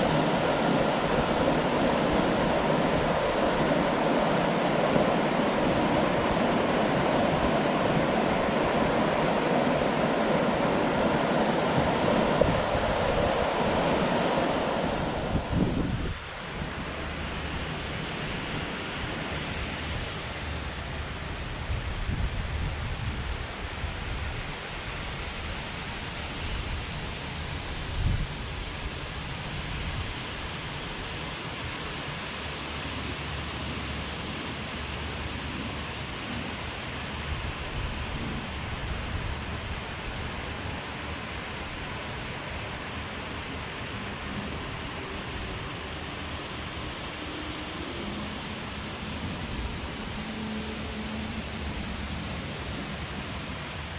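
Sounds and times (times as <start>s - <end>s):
river water rushing: 0.0s - 21.8s, 23.1s - 53.9s
wind rumbling on microphone: 0.0s - 30.6s.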